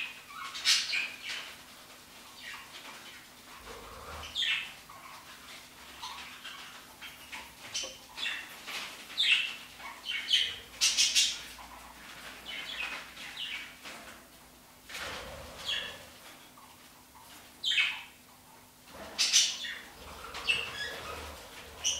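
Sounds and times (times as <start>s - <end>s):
small bird chirping and squawking: 15.4s - 16.1s, 18.9s - 21.9s.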